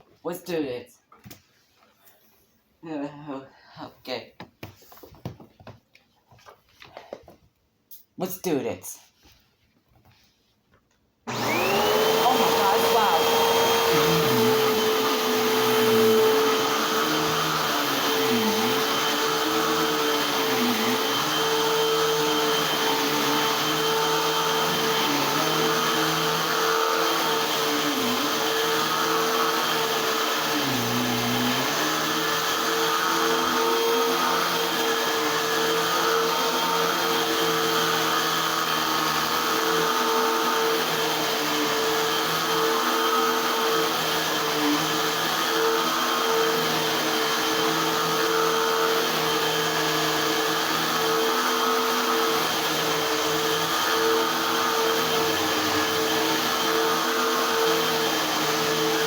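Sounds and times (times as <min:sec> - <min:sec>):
vacuum cleaner running: 0:11.3 - 0:59.0.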